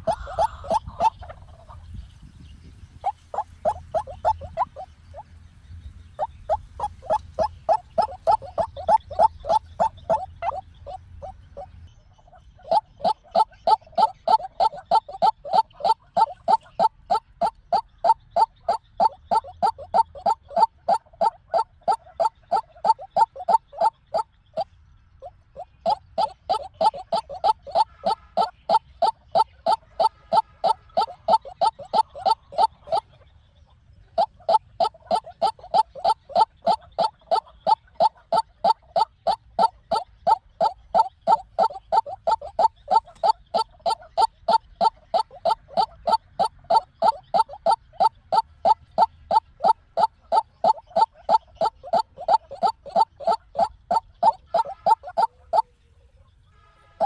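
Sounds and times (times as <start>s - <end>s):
bird repeated calling notes: 0.0s - 2.0s, 2.9s - 5.2s, 6.2s - 57.0s.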